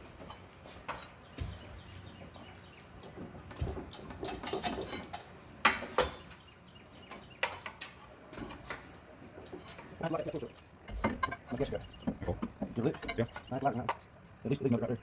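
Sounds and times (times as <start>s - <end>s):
sharp metal knocks: 10.8s - 14.0s
pry bar scraping on metal: 10.8s - 14.2s.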